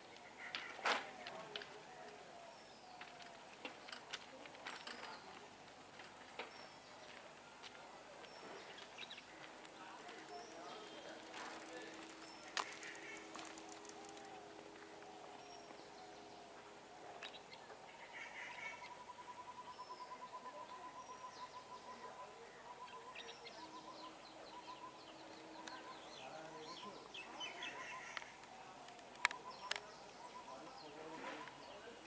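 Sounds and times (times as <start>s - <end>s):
birds chirping and calling: 8.2s - 14.4s, 17.1s - 32.0s.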